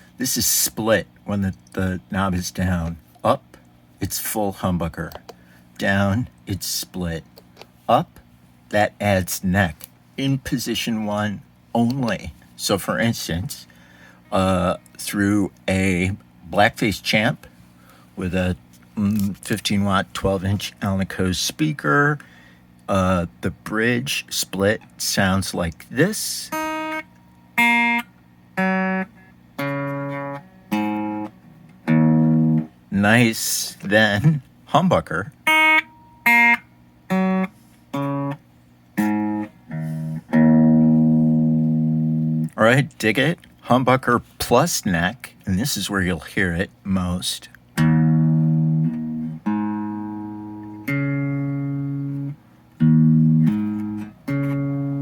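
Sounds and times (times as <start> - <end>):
electric guitar picked notes: 26.5 - 32.8, 35.4 - 42.6, 47.8 - 55.0.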